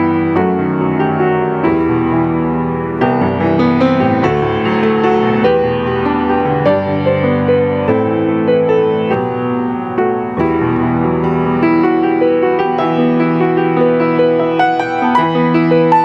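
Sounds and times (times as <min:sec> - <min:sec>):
piano chords and melody: 0:00.0 - 0:16.0.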